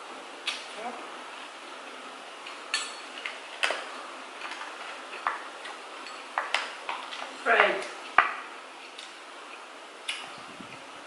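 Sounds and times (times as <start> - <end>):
utensils clinking on plates: 2.7 - 3.8, 4.4 - 7.7.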